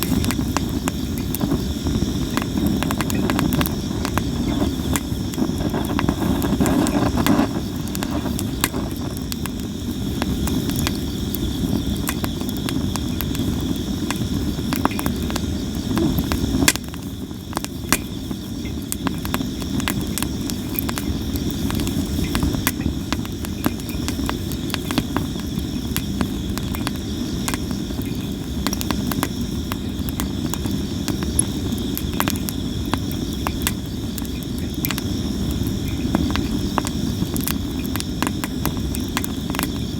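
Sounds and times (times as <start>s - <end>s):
crickets chirping: 0.0s - 39.9s
wood fire crackling and popping: 0.0s - 39.9s.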